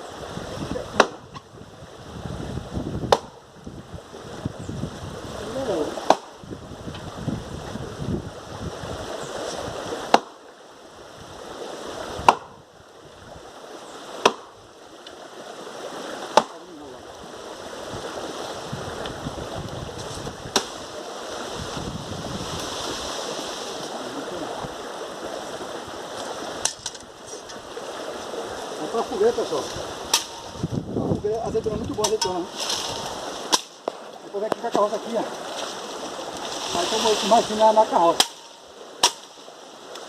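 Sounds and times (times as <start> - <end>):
sharp knocks: 1.0 - 1.5, 3.1 - 3.4, 12.2 - 12.6, 14.2 - 14.6, 16.3 - 16.6.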